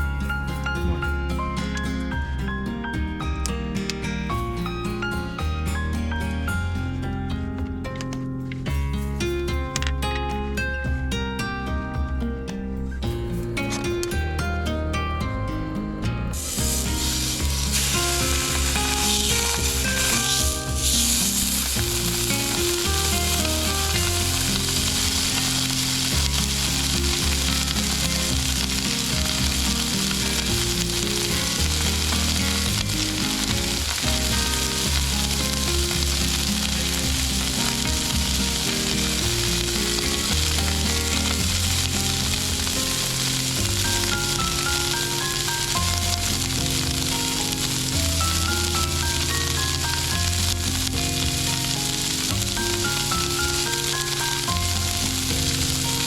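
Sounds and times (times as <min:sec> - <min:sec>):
steak sizzling in a pan: 0:16.4 - 0:56.0.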